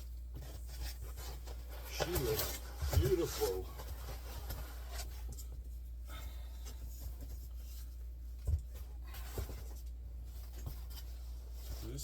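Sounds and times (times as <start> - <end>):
packaging rustling and scraping: 0.4 - 5.4.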